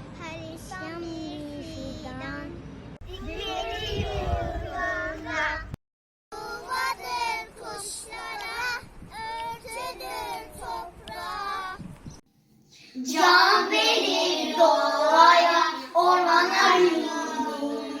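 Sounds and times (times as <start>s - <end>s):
children singing: 6.4s - 8.8s, 13.0s - 18.0s.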